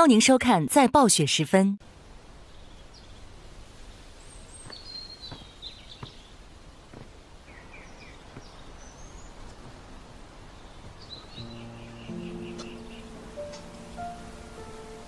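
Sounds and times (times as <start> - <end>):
soft taps: 4.6 - 6.3, 6.9 - 7.2, 9.4 - 10.2, 10.8 - 11.2.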